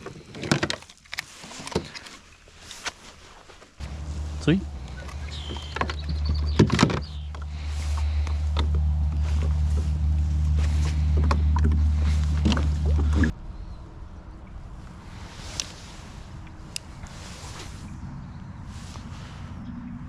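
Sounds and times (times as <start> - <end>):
kayak pedal drive humming: 3.8 - 13.3.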